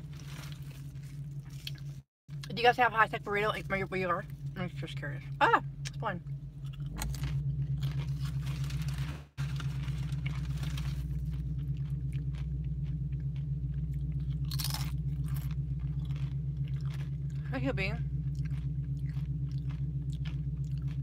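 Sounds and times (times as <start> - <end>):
crunching chips: 0.0 - 2.0, 6.7 - 17.5, 18.2 - 21.0
steady low hum: 0.0 - 21.0.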